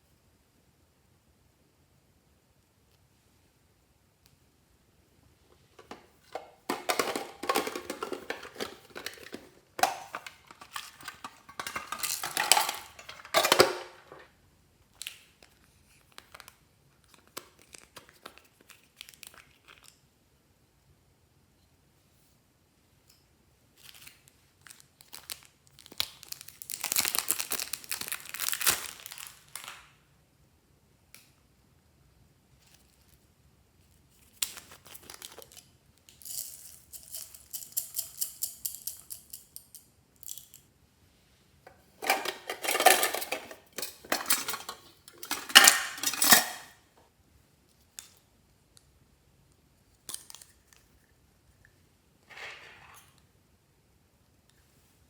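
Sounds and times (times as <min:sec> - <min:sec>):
plastic packaging crinkling: 0:05.8 - 0:14.3, 0:17.1 - 0:19.9, 0:23.8 - 0:29.9, 0:34.2 - 0:35.6, 0:41.7 - 0:46.7.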